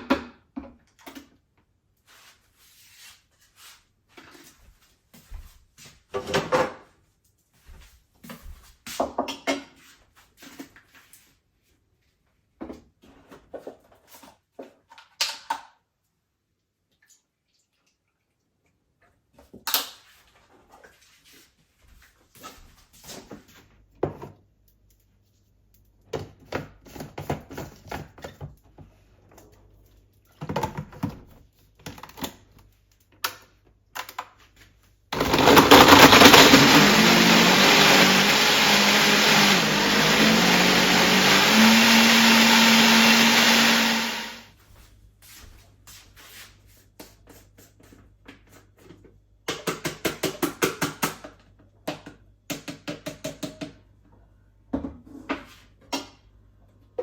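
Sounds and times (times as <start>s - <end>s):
blender motor running: 35.2s - 44.4s.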